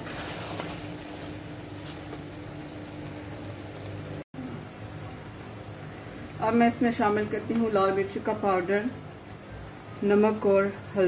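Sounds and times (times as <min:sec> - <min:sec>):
food sizzling in oil: 0:00.0 - 0:11.0
faint steady hum: 0:02.2 - 0:11.0.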